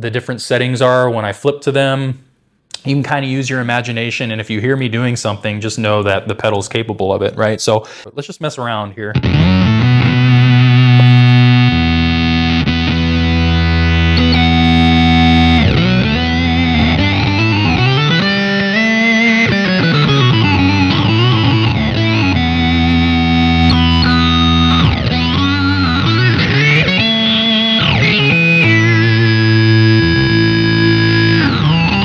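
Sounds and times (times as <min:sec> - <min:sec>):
buzzy synth guitar tone: 0:09.1 - 0:32.0.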